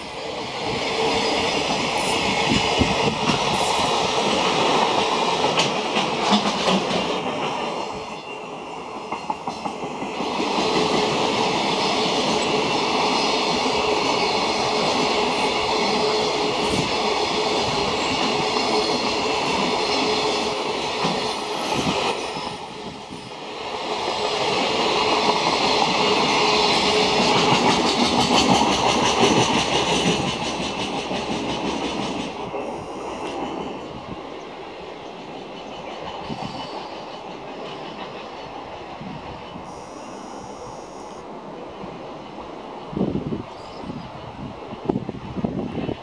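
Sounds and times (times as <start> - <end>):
train wheels clattering over rail joints: 1.5 - 8.0, 24.4 - 32.5.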